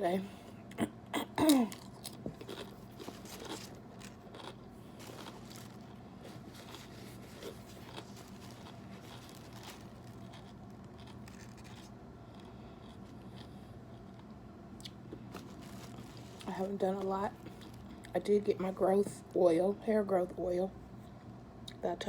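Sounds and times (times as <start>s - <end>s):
chewing sandwich with soft crunching: 1.6s - 18.2s.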